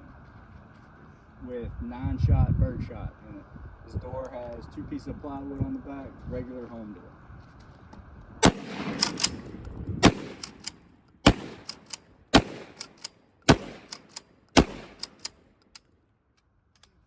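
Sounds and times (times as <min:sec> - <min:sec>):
shotgun shots: 0:08.4 - 0:15.4
shotgun action clacks: 0:08.4 - 0:15.8.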